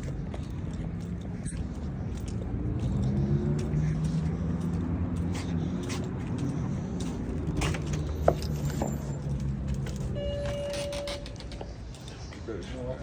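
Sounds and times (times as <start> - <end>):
car engine humming: 0.0 - 12.5
steady high chime tone: 10.1 - 11.4.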